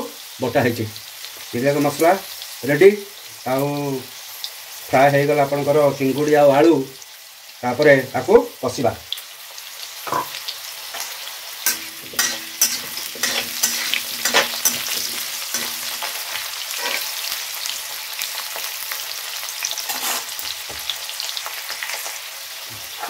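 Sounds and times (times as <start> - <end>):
potatoes sizzling in hot oil: 0.0 - 23.0
spatula scraping a pan: 10.1 - 17.4, 19.7 - 20.9.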